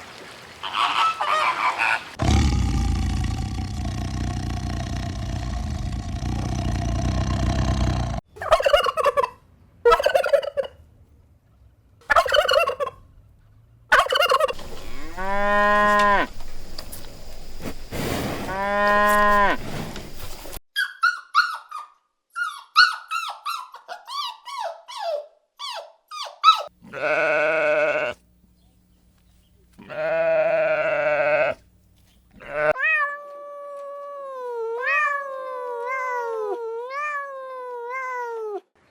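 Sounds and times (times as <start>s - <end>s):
farm animal calls: 0.6s - 2.2s, 8.4s - 10.8s, 12.1s - 13.0s, 13.9s - 16.6s, 18.4s - 21.8s, 22.5s - 28.2s, 29.7s - 31.6s, 32.3s - 32.8s.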